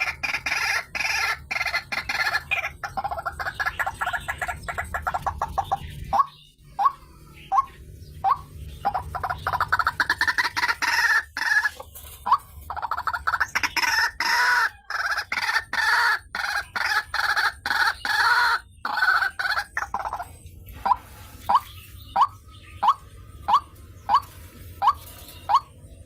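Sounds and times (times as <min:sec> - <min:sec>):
waterhen calling harsh notes: 0:00.0 - 0:25.9.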